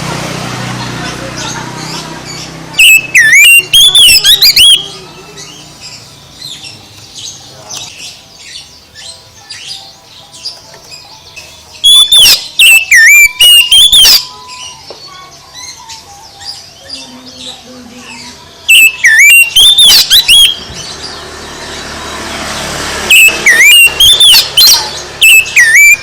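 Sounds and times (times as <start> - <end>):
bird singing whistled phrases: 2.8 - 5.6, 11.8 - 17.6, 18.2 - 20.8, 23.1 - 26.0.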